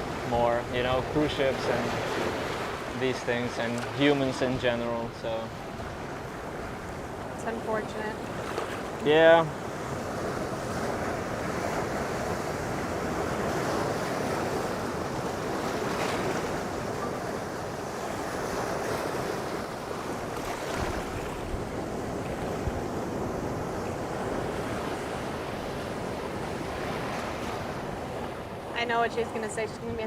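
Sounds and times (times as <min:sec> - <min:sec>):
surf washing onto shore: 0:00.0 - 0:30.0
wind buffeting microphone: 0:05.6 - 0:30.0.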